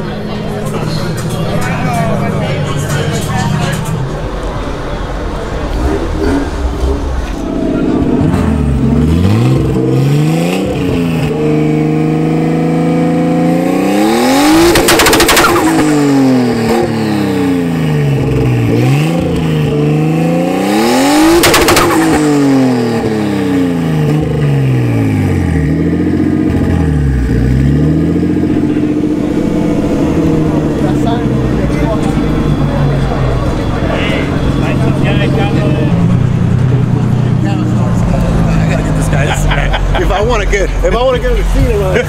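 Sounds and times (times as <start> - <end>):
car engine revving: 0.0 - 42.0
rev limiter pops: 14.5 - 16.9, 21.2 - 23.2.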